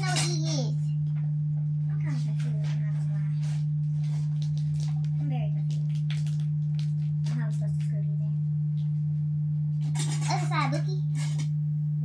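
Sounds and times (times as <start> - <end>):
loud steady low hum: 0.0 - 12.0.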